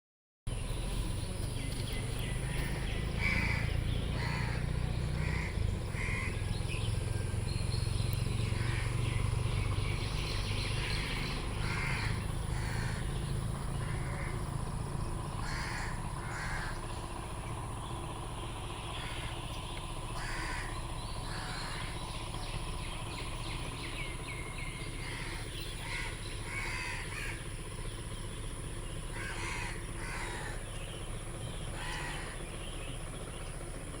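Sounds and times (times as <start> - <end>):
steady low rumble: 0.5 - 34.0
crows cawing: 2.4 - 6.5, 8.4 - 9.3, 10.8 - 17.8, 18.9 - 22.3, 24.3 - 27.7, 29.1 - 30.9, 31.7 - 32.6.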